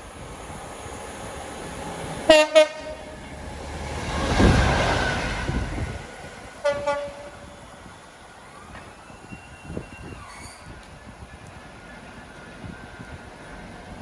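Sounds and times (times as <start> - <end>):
diesel locomotive running: 0.0 - 14.0
locomotive horn blasts: 2.3 - 3.2, 6.6 - 7.5.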